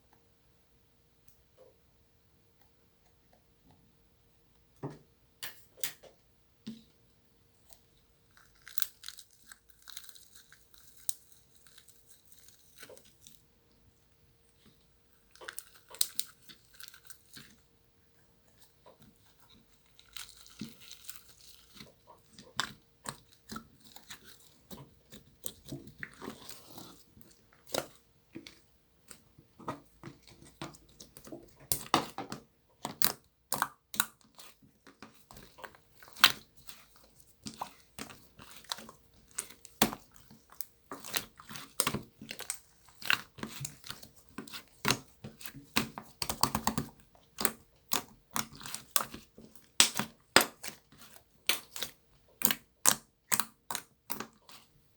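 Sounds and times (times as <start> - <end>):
slime squished by hand: 18.5 - 54.7.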